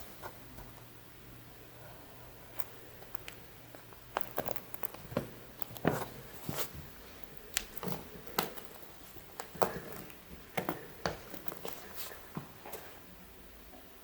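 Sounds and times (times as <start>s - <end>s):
light taps clicks and scuffs: 2.6s - 13.0s.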